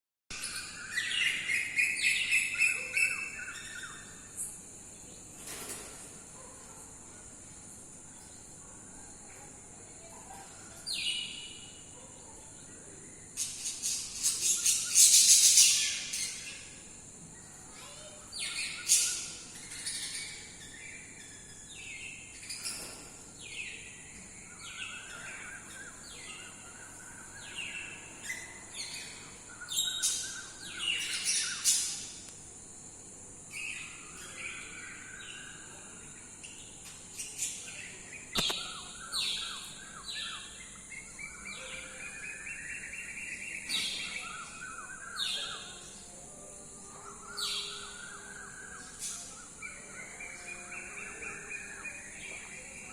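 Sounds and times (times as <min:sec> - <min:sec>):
birds chirping: 0:33.6 - 0:45.9.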